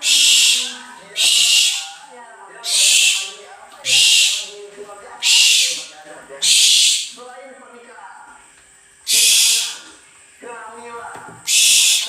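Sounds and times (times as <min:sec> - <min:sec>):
owl hissing: 0:00.0 - 0:02.0, 0:02.6 - 0:04.6, 0:05.2 - 0:07.2, 0:09.0 - 0:10.0, 0:11.4 - 0:12.0.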